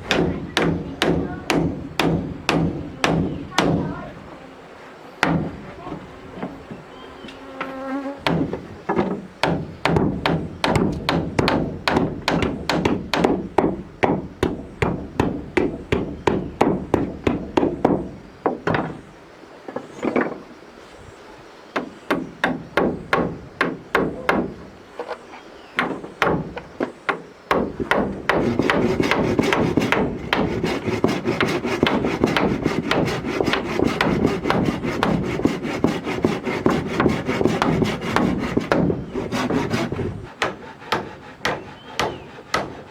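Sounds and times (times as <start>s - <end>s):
hammer striking wood: 0.0s - 4.0s, 5.2s - 6.6s, 8.2s - 19.0s, 25.8s - 42.9s
saw cutting wood: 27.9s - 42.9s.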